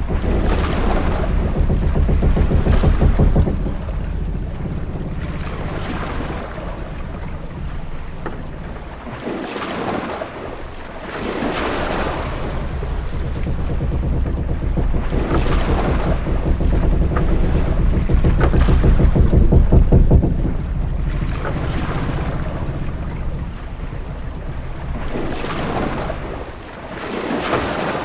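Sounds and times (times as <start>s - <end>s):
faint knocks: 0.0s - 26.8s
low wind rumble: 0.0s - 27.1s
waves washing against hull: 0.0s - 28.0s.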